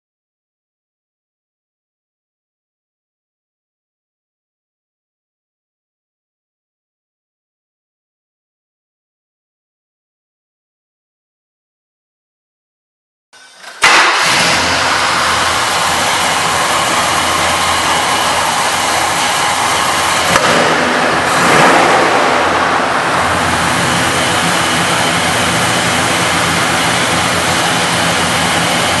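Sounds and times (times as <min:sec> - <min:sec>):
car engine starting and idling: 0:13.4 - 0:29.0.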